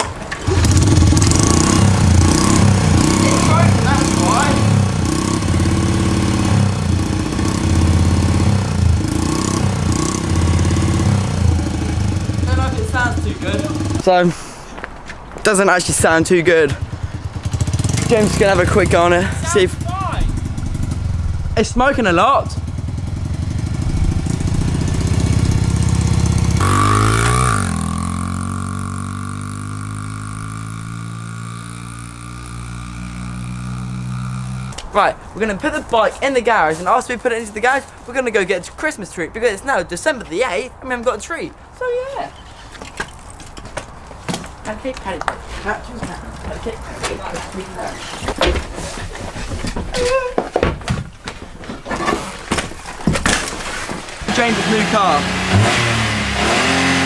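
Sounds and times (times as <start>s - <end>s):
motorbike engine revving: 0.0s - 14.1s, 16.6s - 35.0s, 54.2s - 57.0s
man talking: 3.0s - 4.8s, 12.4s - 14.4s, 15.4s - 16.8s, 18.0s - 20.4s, 21.5s - 22.6s, 34.9s - 42.4s, 54.3s - 55.4s.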